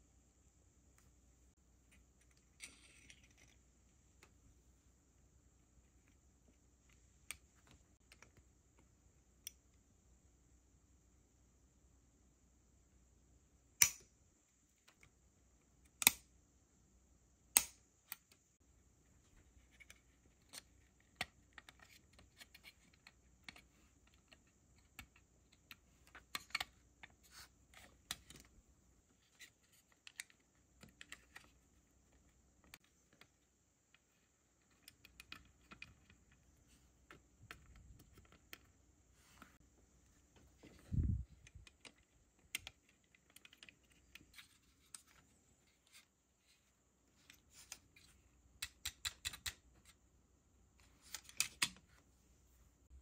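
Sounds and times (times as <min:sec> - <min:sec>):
plastic parts clicking: 0:19.6 - 0:28.5, 0:29.2 - 0:38.8, 0:41.3 - 0:46.1, 0:47.2 - 0:50.0, 0:51.0 - 0:51.9.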